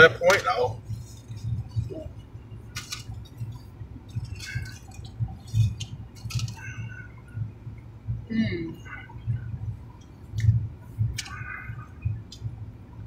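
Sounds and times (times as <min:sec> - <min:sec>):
low steady rumble: 0:00.0 - 0:13.0
person chewing sandwich: 0:00.9 - 0:07.2.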